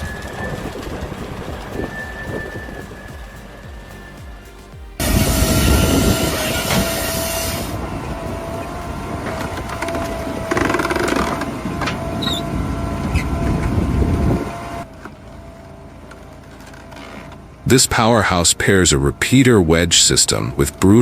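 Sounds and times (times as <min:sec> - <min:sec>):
heavy wood-processing machinery running: 0:00.0 - 0:16.7.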